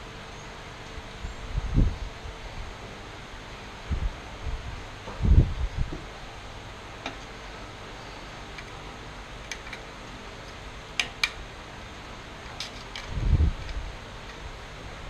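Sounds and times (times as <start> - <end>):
clicks of small metal parts: 9.5 - 9.9, 12.5 - 14.4.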